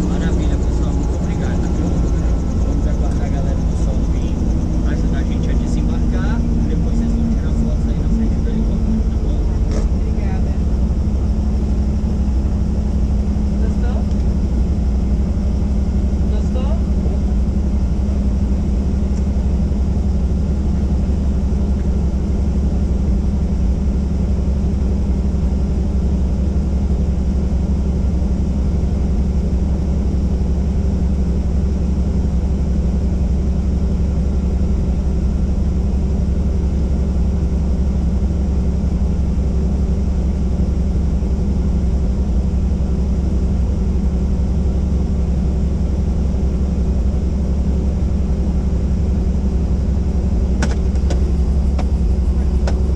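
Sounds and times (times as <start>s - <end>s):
helicopter engine and rotor drone: 0.0s - 52.9s.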